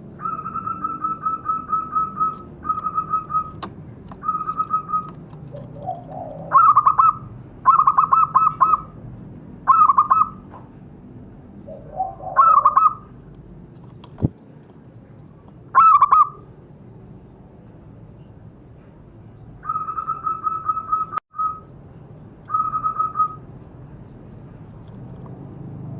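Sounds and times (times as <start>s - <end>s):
dove cooing: 4.2s - 9.0s, 11.6s - 13.1s.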